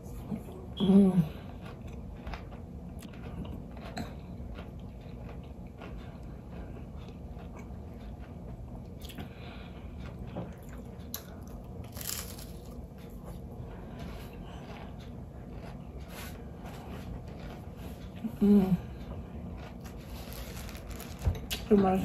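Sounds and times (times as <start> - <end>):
moist chewing: 1.5 - 13.4
crunching of fried breading: 11.2 - 13.0, 19.6 - 21.4.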